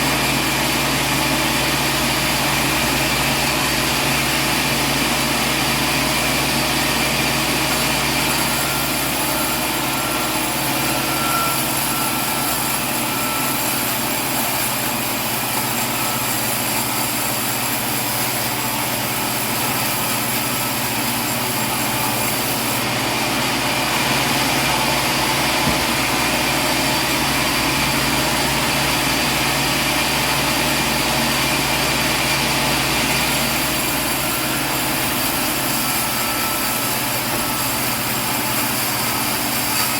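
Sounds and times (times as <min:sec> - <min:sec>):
sawmill machinery drone: 0:00.0 - 0:39.9
faint machine whine: 0:07.7 - 0:16.6.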